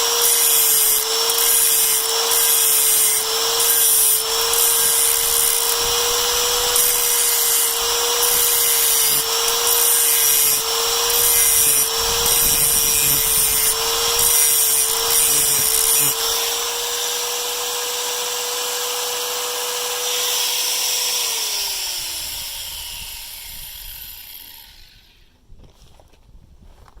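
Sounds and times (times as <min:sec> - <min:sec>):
file scraping metal: 0:00.0 - 0:20.5.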